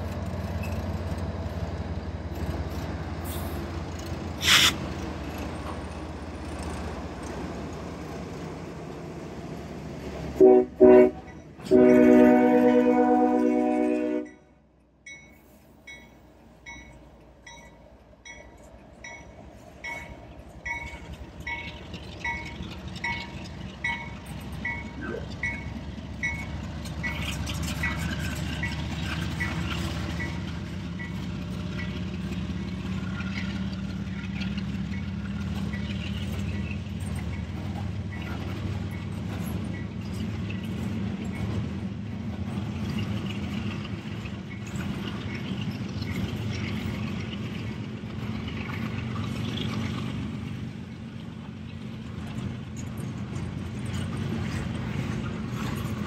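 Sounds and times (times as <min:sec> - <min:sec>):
diesel locomotive engine hum: 0:00.0 - 0:56.0
freight train rolling past: 0:00.0 - 0:56.0
train wheel rumble: 0:00.0 - 0:56.0
crossing bell dinging: 0:14.2 - 0:28.8.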